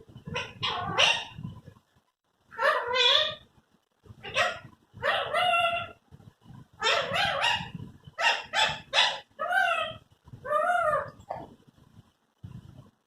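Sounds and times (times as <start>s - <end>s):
parrot calls and squawks: 0.2s - 1.5s, 2.5s - 3.5s, 4.1s - 6.0s, 6.7s - 11.5s.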